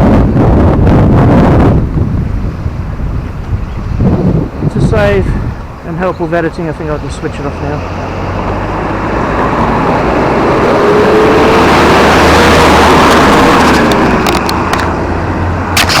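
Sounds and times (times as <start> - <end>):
road vehicle passing by: 5.2 - 15.8
sharp clicks: 13.1 - 15.0, 15.8 - 16.0.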